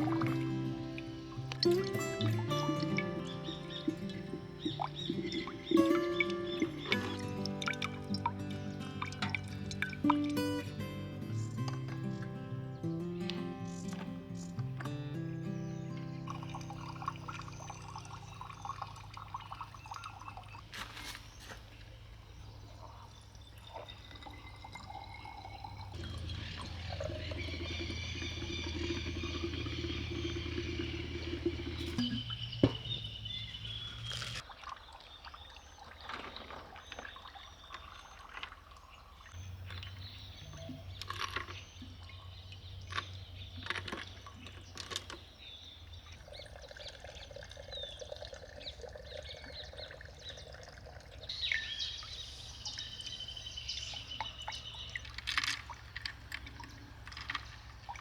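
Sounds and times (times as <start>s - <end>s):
water pouring and trickling: 0.0s - 58.0s.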